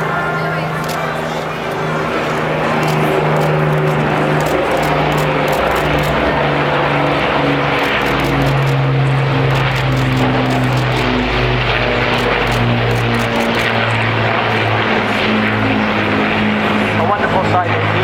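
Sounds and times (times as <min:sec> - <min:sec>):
propeller plane engines droning: 0:00.0 - 0:18.0.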